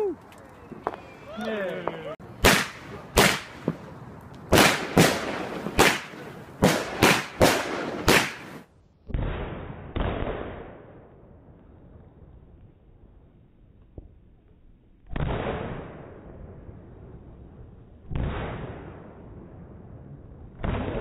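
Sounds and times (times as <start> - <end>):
dull fireworks booms: 1.8 - 14.2, 15.1 - 21.0
fireworks sharp bangs: 1.9 - 11.0.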